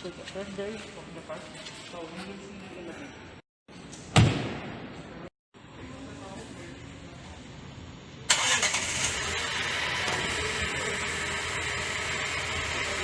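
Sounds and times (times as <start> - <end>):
car engine starting and idling: 8.3 - 13.0.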